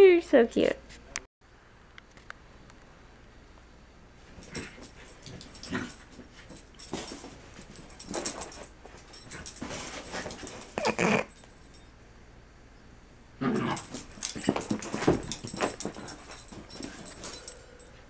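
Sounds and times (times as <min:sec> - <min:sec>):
puppy making short sounds: 0:10.8 - 0:11.3.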